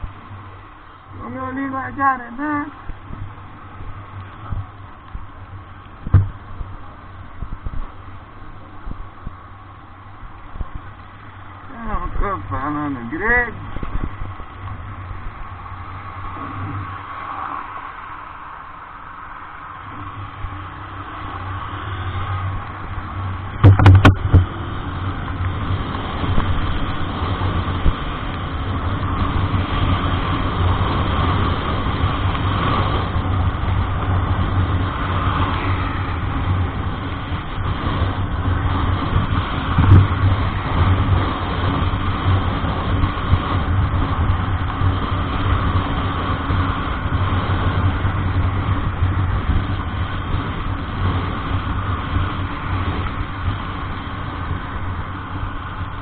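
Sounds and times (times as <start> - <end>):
vehicle engine and road noise: 0.0 - 56.0
loud knocks: 23.6 - 24.5.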